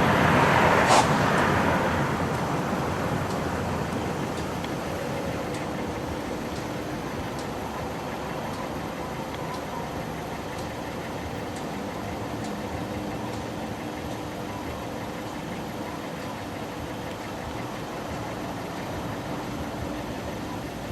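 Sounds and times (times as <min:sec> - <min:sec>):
diesel locomotive engine running: 0:00.0 - 0:20.9.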